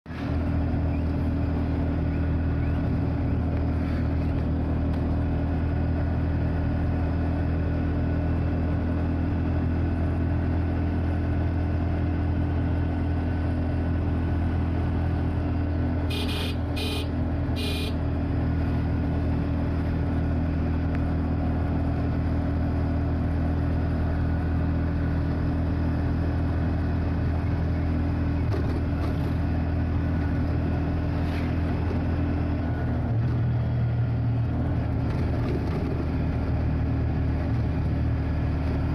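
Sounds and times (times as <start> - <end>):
vehicle engine droning: 0.1 - 38.9
short horn beeps: 16.1 - 18.0.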